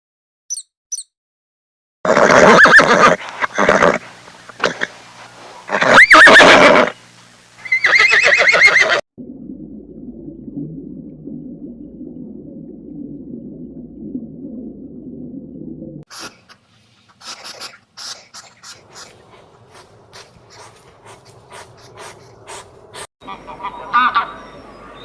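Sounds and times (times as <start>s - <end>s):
horse whinnying: 2.1s - 4.0s, 5.7s - 7.0s, 7.6s - 9.0s
low muffled rumble: 9.2s - 16.1s.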